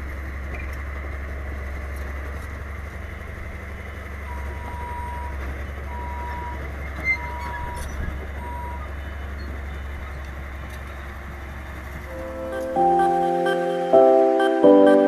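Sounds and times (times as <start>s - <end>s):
truck engine droning: 0.0s - 15.0s
reversing alarm beeping: 4.2s - 8.9s, 12.1s - 15.0s.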